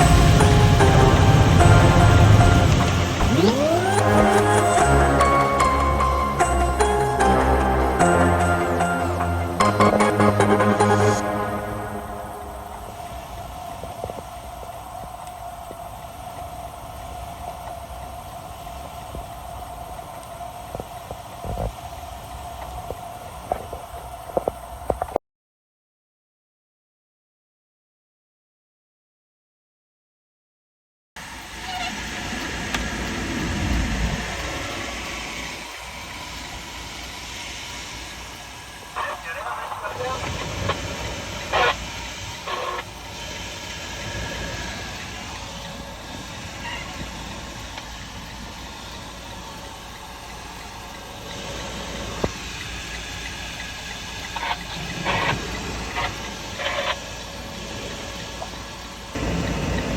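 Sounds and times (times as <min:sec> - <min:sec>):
truck engine and road noise: 0:00.0 - 0:25.2, 0:31.2 - 0:59.9
click: 0:31.7 - 0:37.2.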